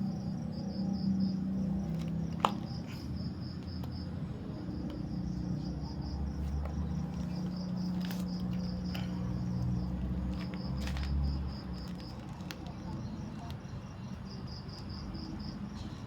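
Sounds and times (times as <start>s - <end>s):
insect pulsed trill: 0.0s - 10.0s.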